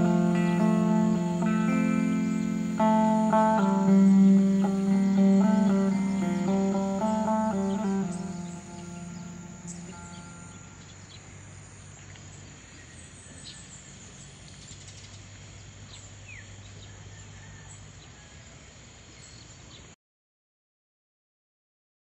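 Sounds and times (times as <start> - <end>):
guitar music: 0.0 - 10.9
bird chirps: 0.0 - 18.4
faint low hum: 0.0 - 19.8
background hiss: 0.0 - 20.0
insect calls: 0.0 - 20.0.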